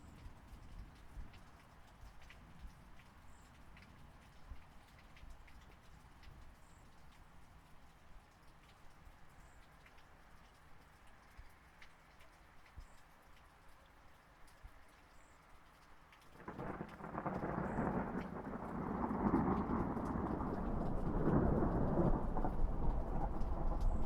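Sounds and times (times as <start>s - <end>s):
light rain dripping: 0.0s - 24.0s
thunder rumbling: 16.4s - 24.0s.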